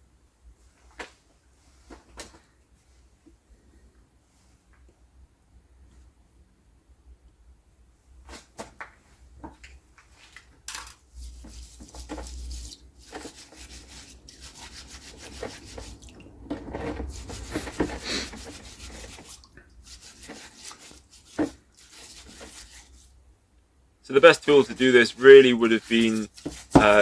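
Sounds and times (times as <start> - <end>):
brush scrubbing metal: 11.1 - 23.2, 24.1 - 27.0.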